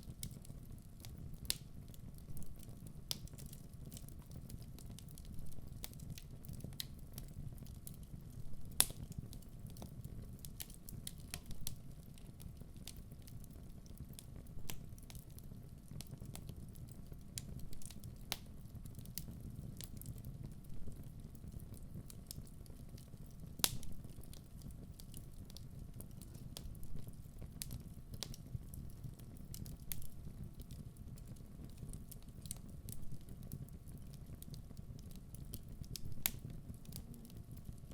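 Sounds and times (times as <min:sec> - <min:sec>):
low fire rumble: 0:00.0 - 0:37.9
wood fire crackling: 0:00.0 - 0:37.9
fire pop: 0:23.6 - 0:24.3, 0:35.0 - 0:37.8.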